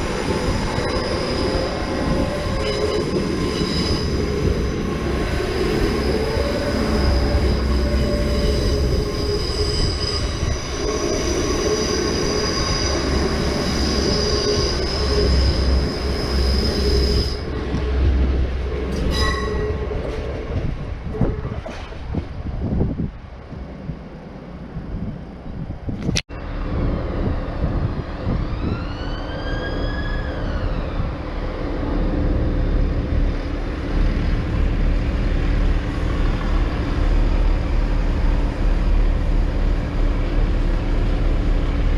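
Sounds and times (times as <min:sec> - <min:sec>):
heavy low rumble of train: 0:00.0 - 0:41.9
train wheels squealing: 0:00.1 - 0:17.6, 0:18.9 - 0:20.2, 0:28.4 - 0:34.5.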